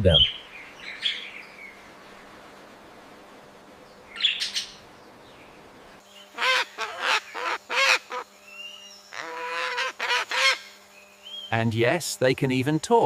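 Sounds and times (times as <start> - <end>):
parrot calling: 6.3 - 8.3, 9.1 - 10.8.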